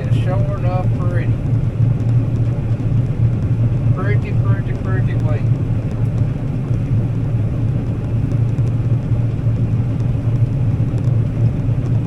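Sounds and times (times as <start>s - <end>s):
combine harvester humming: 0.0s - 12.0s.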